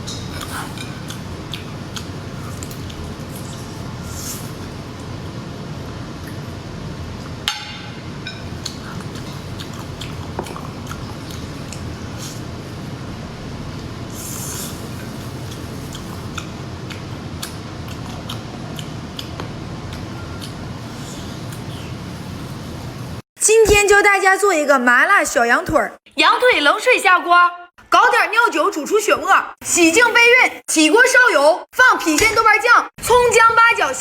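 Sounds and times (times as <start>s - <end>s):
soft eating squishing: 0.0s - 5.1s, 8.5s - 12.9s, 13.8s - 22.7s.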